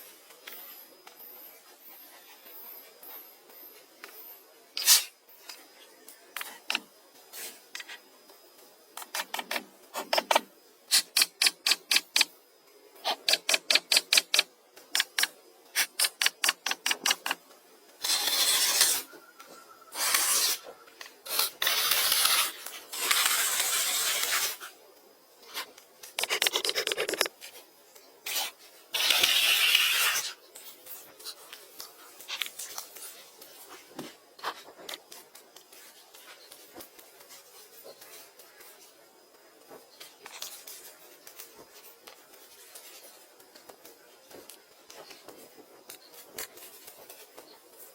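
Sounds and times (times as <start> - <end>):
scraping strokes on wood: 4.8 - 5.1, 18.0 - 19.2, 19.9 - 24.7, 28.2 - 37.4.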